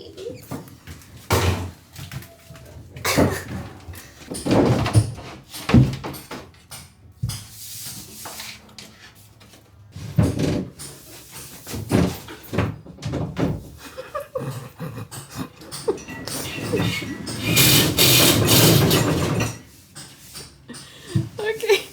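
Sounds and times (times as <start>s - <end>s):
insulation scraping and rubbing: 16.2s - 19.7s.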